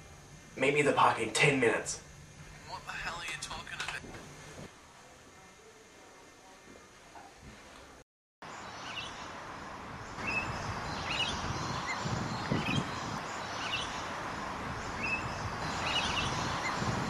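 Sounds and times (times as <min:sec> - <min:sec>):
outdoor background hiss: 0:00.0 - 0:17.0
birds chirping: 0:08.5 - 0:17.0.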